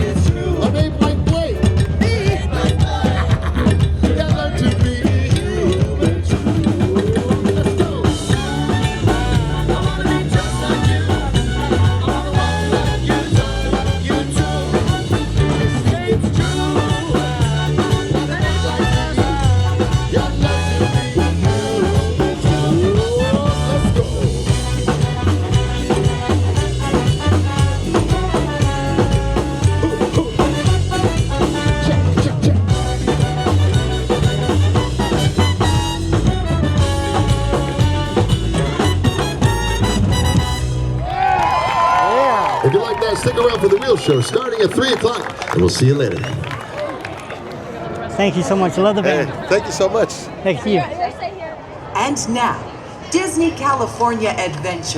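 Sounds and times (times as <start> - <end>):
drum kit: 0.0 - 42.2
live band playing upbeat music: 0.0 - 47.5.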